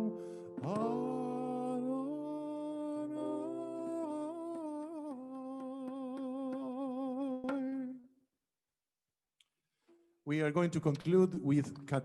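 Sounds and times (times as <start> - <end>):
sustained keyboard chord: 0.0 - 5.0.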